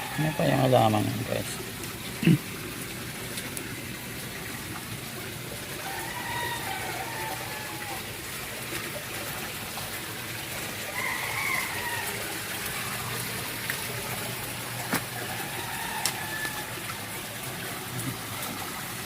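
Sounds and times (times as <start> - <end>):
water flowing: 0.0 - 19.0
rooster crowing: 5.8 - 8.1, 10.9 - 12.9, 15.2 - 16.9.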